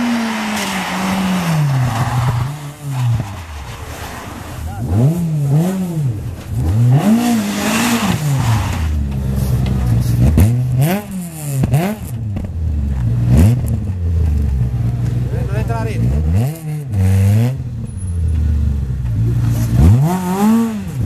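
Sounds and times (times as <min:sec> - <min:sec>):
car engine revving hard: 0:00.0 - 0:12.2, 0:15.9 - 0:17.6, 0:19.5 - 0:21.0.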